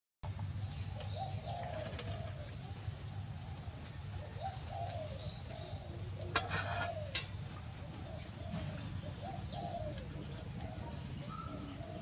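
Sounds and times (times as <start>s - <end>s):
birds cooing: 0.4s - 12.0s.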